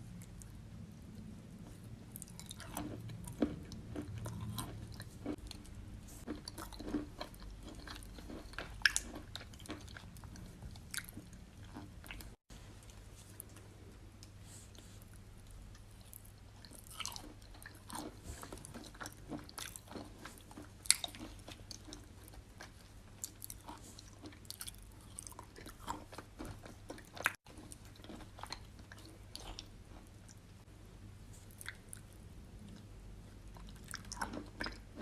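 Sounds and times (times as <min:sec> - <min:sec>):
chewing wet chalk crunches: 0:01.6 - 0:12.4.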